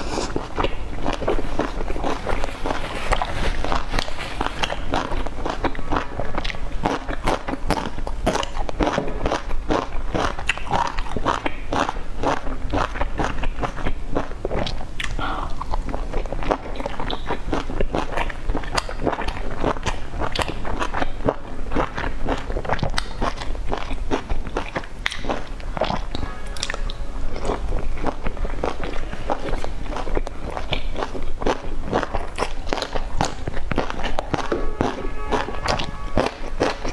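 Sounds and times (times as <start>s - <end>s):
wet chewing and smacking: 0.0s - 36.9s
quick mouth clicks: 15.0s - 15.7s.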